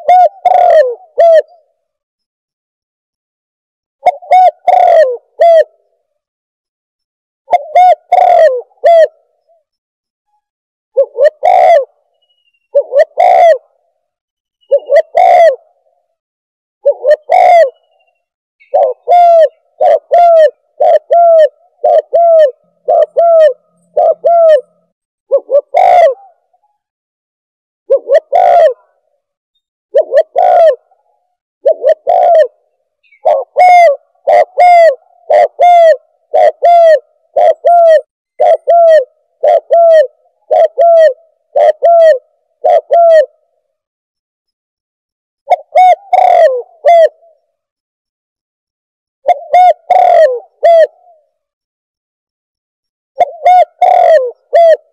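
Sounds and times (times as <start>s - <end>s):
dove cooing: 0.0s - 1.9s, 4.0s - 5.9s, 7.5s - 9.7s, 10.9s - 12.1s, 12.7s - 13.8s, 14.6s - 16.0s, 16.8s - 26.8s, 27.9s - 29.1s, 29.9s - 43.6s, 45.5s - 47.5s, 49.2s - 51.3s, 53.2s - 54.9s.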